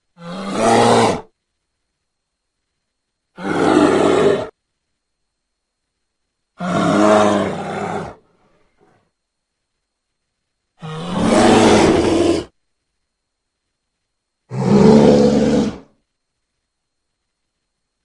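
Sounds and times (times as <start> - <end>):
large animal roaring: 0.2 - 1.3, 3.4 - 4.5, 6.6 - 8.2, 10.8 - 12.5, 14.5 - 15.9.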